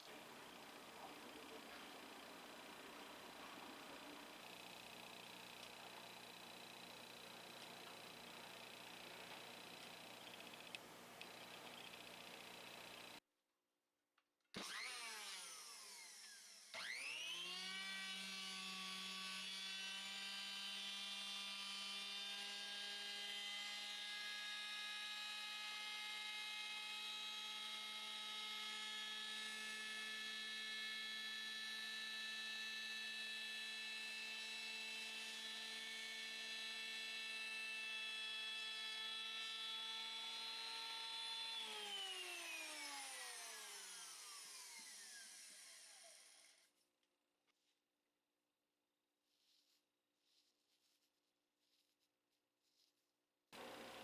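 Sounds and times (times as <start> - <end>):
electric planer whining: 0.0 - 13.2, 14.6 - 46.6.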